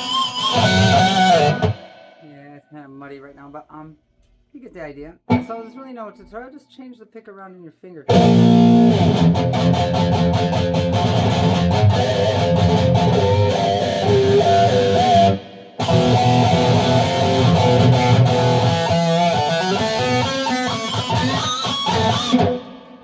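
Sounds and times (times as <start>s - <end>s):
electric guitar pick harmonics: 0.0s - 2.4s, 8.1s - 23.0s.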